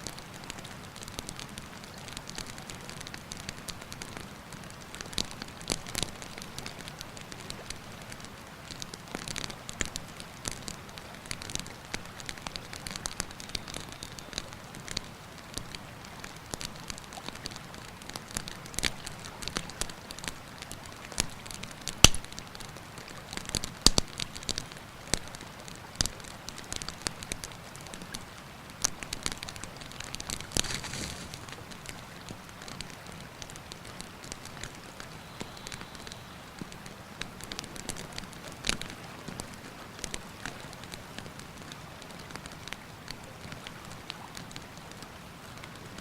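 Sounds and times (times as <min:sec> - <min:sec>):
campfire crackling and popping: 0:00.0 - 0:46.0.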